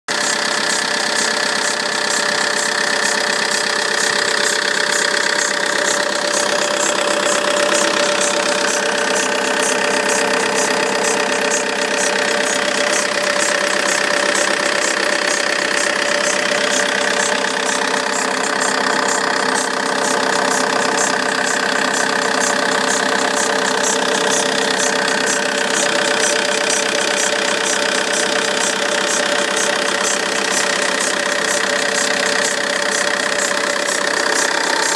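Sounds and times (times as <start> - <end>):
diesel engine idling: 0.1 - 34.9
engine whine: 0.1 - 34.9
fast even ticking: 0.1 - 34.9.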